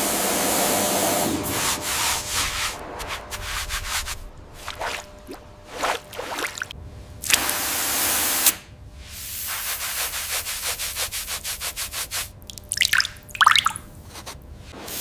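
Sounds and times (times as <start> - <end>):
steady hiss: 7.4 - 12.4.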